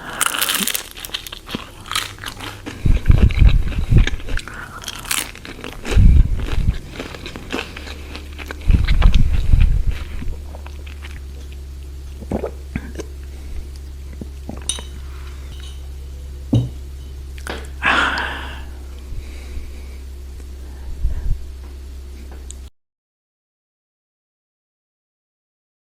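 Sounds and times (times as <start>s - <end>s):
crunchy bite and chewing: 0.0s - 15.7s
steady low hum: 0.0s - 22.7s.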